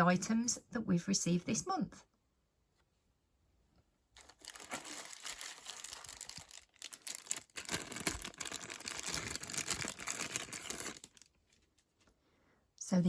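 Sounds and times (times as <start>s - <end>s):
packaging rustling and crinkling: 4.2s - 12.1s.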